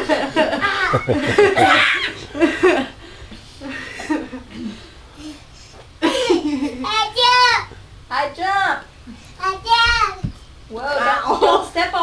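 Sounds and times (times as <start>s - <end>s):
laughter: 0.0s - 3.0s, 3.6s - 4.7s, 6.0s - 6.8s.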